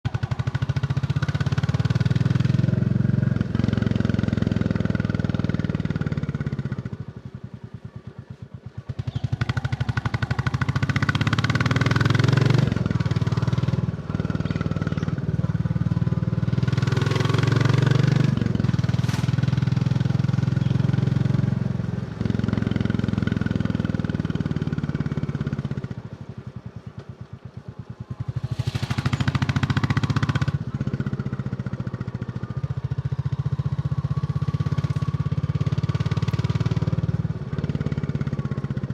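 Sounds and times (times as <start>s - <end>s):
motorcycle engine thumping: 18.6s - 19.8s, 28.0s - 30.8s.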